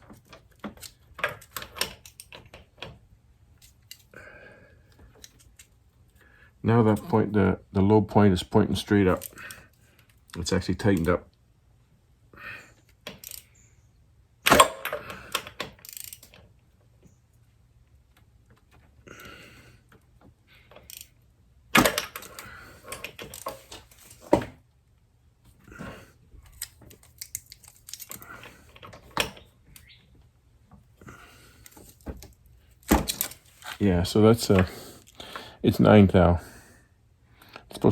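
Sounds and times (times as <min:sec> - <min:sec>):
hand tools clicking and rattling: 0:00.0 - 0:02.9, 0:09.1 - 0:11.1, 0:13.1 - 0:13.5, 0:14.5 - 0:16.4, 0:20.7 - 0:21.2, 0:21.8 - 0:24.4, 0:26.5 - 0:29.4.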